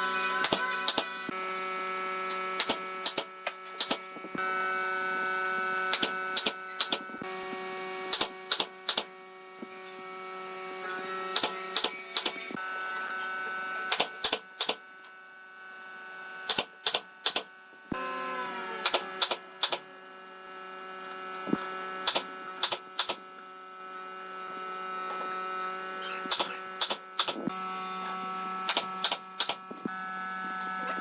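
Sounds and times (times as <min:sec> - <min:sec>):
electric hum: 0:00.0 - 0:31.0
sharp clicks: 0:02.6 - 0:04.0, 0:05.9 - 0:07.0, 0:08.1 - 0:09.1, 0:11.3 - 0:12.4, 0:16.5 - 0:17.5, 0:18.8 - 0:19.8, 0:22.0 - 0:23.2, 0:26.3 - 0:27.4, 0:28.7 - 0:29.6.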